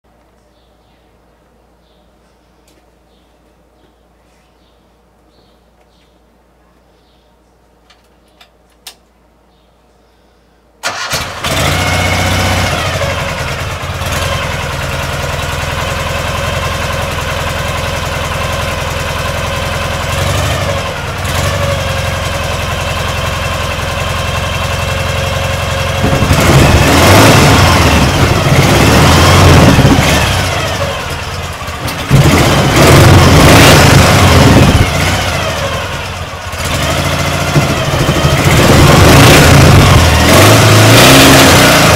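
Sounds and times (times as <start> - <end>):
motorcycle engine revving: 10.8 - 41.9.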